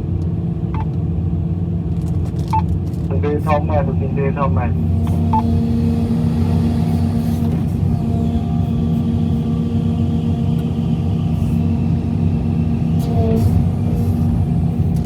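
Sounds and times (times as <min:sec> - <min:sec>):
excavator diesel engine humming: 0:03.0 - 0:15.0.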